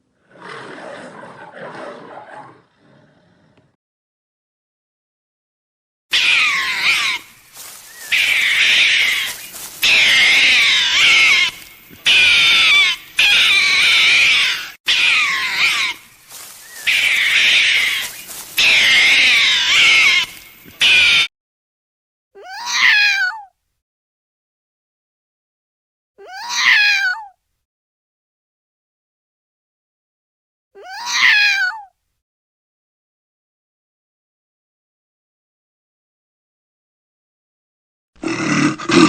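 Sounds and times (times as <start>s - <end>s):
animal calling loudly: 6.1s - 21.3s.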